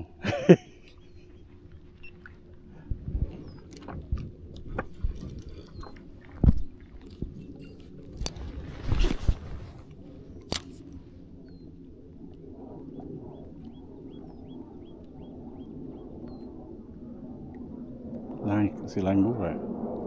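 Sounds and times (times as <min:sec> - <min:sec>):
low background hum: 0:00.0 - 0:20.0
small bird chirping: 0:00.9 - 0:02.2, 0:03.4 - 0:03.7.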